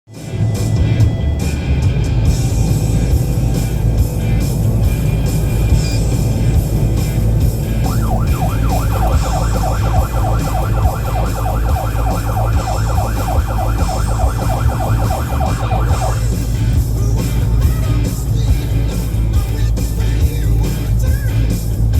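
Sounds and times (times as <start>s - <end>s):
steady low rumble: 0.3s - 21.9s
police car siren wailing and yelping: 7.5s - 16.5s.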